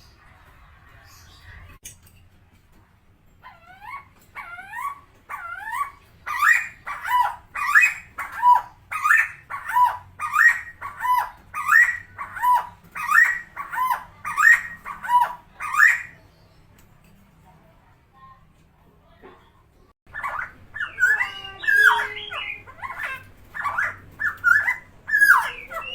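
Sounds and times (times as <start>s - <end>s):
bird harsh repeated calls: 3.7s - 16.2s, 20.1s - 25.9s.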